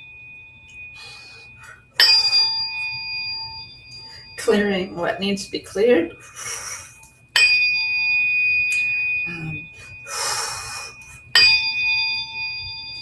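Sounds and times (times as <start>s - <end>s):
tuning fork ringing: 0.0s - 13.0s.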